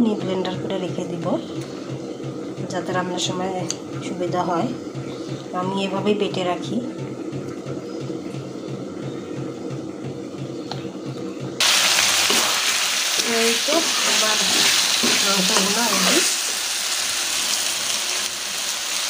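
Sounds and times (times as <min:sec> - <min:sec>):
meat and potato sizzling in oil: 0:11.6 - 0:19.0.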